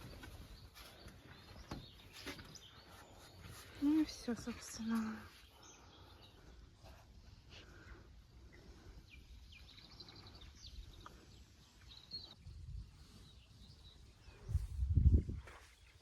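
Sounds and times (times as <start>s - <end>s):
low rumble on microphone: 12.4s - 15.6s.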